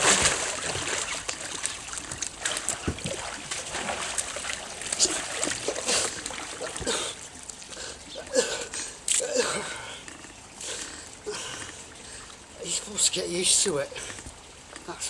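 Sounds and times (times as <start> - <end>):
water splashing against kayak: 0.0 - 7.8.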